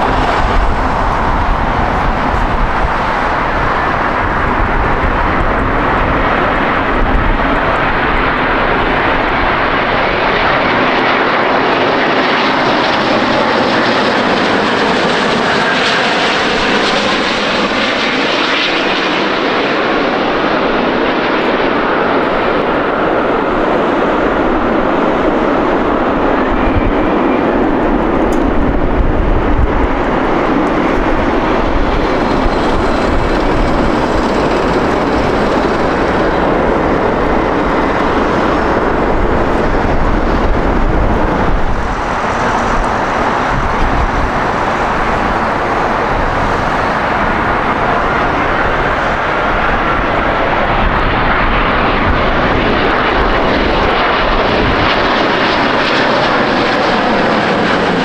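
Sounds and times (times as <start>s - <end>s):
jet airliner engines roaring: 0.0s - 58.0s.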